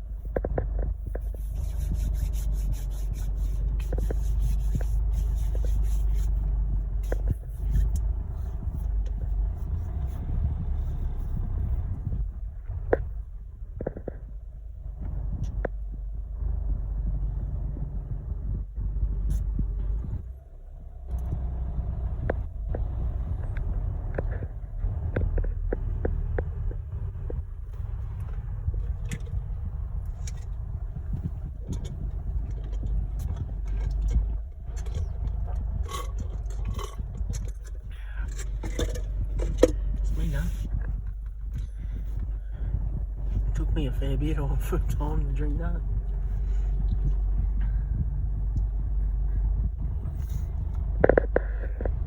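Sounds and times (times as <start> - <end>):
low vehicle rumble in cabin: 0.0 - 52.0
light clicks and knocks: 22.2 - 52.0.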